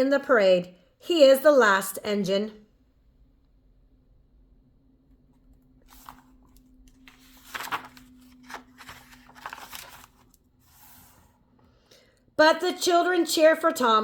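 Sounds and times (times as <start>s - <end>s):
book pages rustling: 5.4s - 11.4s.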